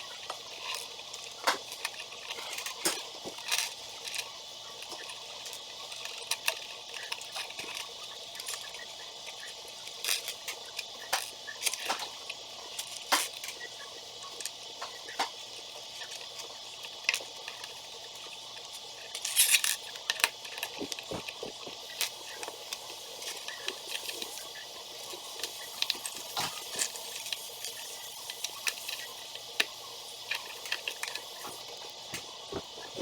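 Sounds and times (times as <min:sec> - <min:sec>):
steady hiss: 0:07.0 - 0:33.0
toy pieces clicking and rattling: 0:19.1 - 0:24.4.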